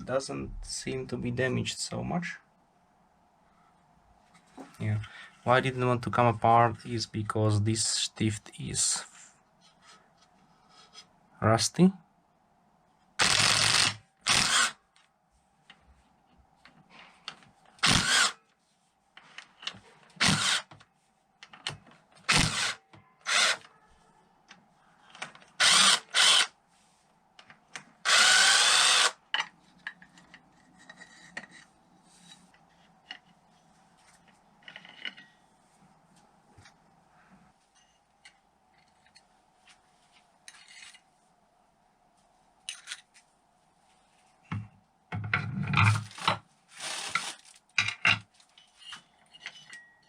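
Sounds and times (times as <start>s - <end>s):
power drill bursts: 13.2s - 14.8s, 17.8s - 18.4s, 20.2s - 20.7s, 22.3s - 23.6s, 25.6s - 26.5s, 28.0s - 29.2s, 46.8s - 47.3s
clinks of parts and tools: 34.2s - 35.4s, 42.6s - 43.2s, 47.7s - 50.0s.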